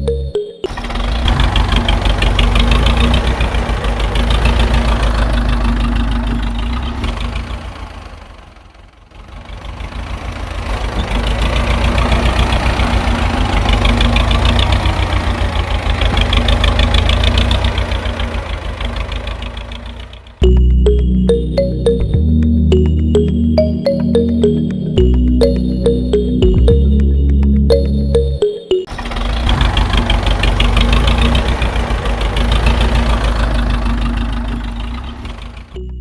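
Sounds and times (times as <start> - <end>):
small tractor engine knocking: 0.7 - 20.7, 28.9 - 36.0.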